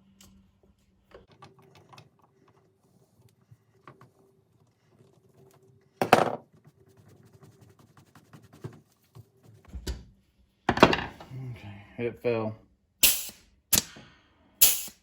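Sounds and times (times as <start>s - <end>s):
air tool burst: 13.0s - 14.0s, 14.6s - 15.0s.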